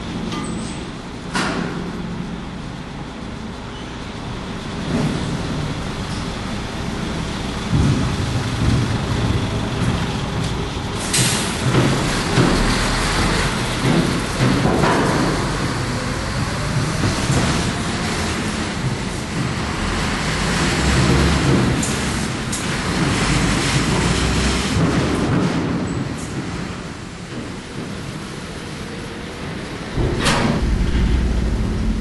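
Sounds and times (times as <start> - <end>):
deep machinery rumble: 0.0 - 25.6, 26.4 - 32.0
loud rushing noise: 29.8 - 32.0
knocks: 30.0 - 32.0.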